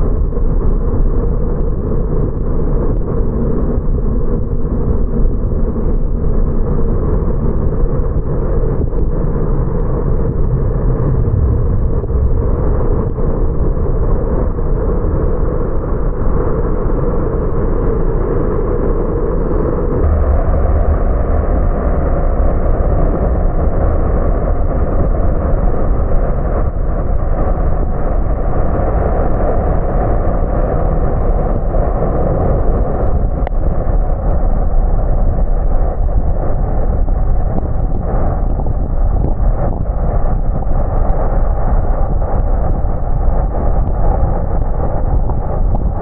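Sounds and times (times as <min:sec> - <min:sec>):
engine drone: 0:00.0 - 0:46.0
tyre and road noise: 0:19.9 - 0:28.3.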